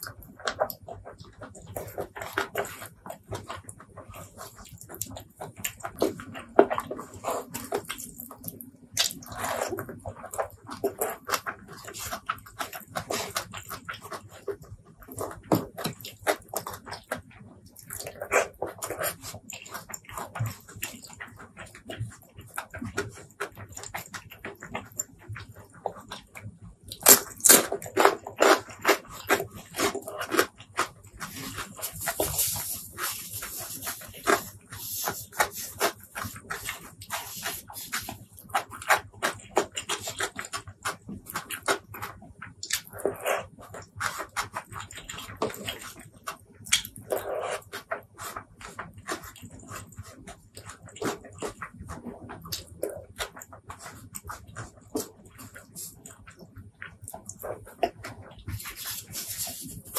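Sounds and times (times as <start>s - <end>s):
wet chewing and lip-smacking: 0.0s - 59.9s
sharp wet clicks: 32.9s - 59.9s.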